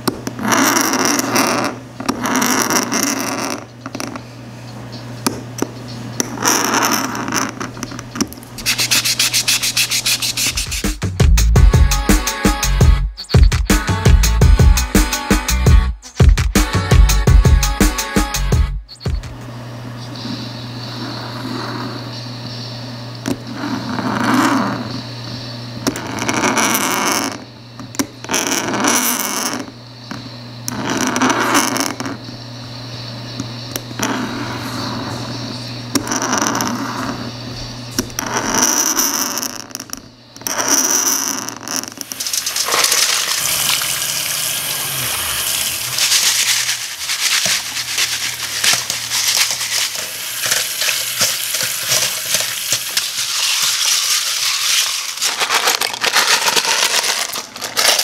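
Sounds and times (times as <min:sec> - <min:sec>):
scribing tool scraping plastic: 0:00.3 - 0:04.1, 0:06.2 - 0:10.9, 0:45.4 - 0:58.0
knife scoring plastic: 0:06.5 - 0:10.9, 0:45.4 - 0:58.0
sanding sponge rubbing plastic: 0:08.6 - 0:11.0, 0:44.3 - 0:57.9.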